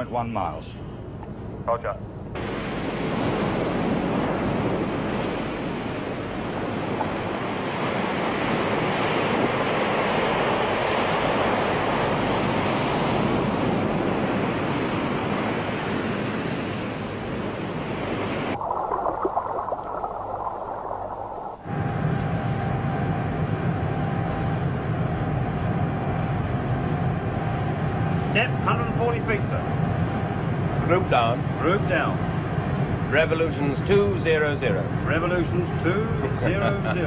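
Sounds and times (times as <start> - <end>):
waves rushing: 2.4 - 23.1.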